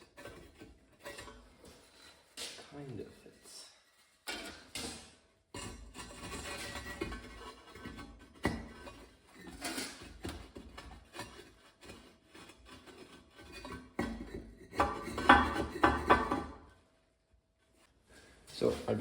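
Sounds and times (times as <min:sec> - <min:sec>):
firebricks knocking and scraping: 0:04.3 - 0:16.7.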